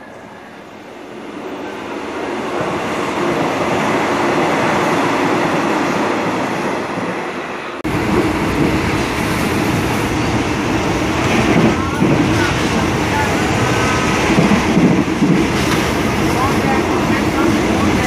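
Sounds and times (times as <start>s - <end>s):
passenger train passing: 0.0s - 18.0s
train noise inside carriage: 0.0s - 18.0s.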